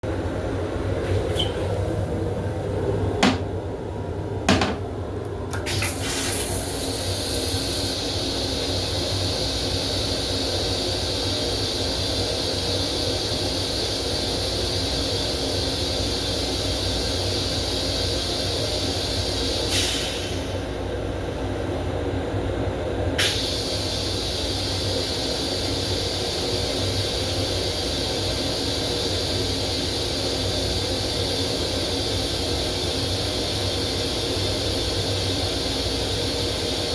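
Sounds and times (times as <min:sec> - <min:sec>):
train running rumble: 0:00.1 - 0:05.8
high hiss: 0:05.7 - 0:21.4.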